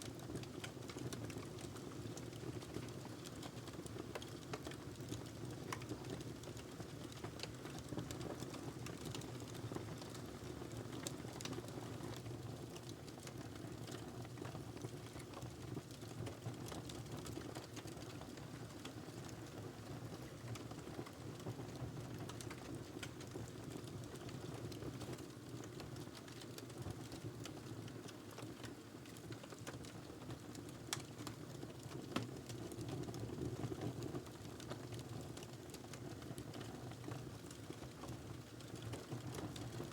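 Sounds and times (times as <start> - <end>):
wood fire crackling: 0.2 - 12.2, 22.1 - 32.8.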